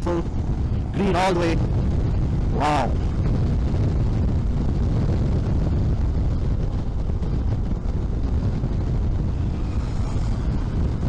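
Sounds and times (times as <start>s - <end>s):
wind rushing over microphone: 0.0s - 11.0s
motorcycle engine cruising: 8.0s - 11.0s.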